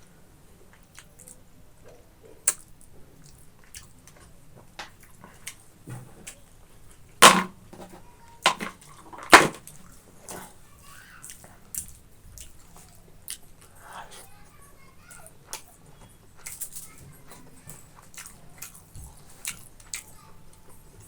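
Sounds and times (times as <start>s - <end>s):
wet chewing clicks and smacks: 0.7s - 4.3s, 11.3s - 13.8s, 18.0s - 20.2s.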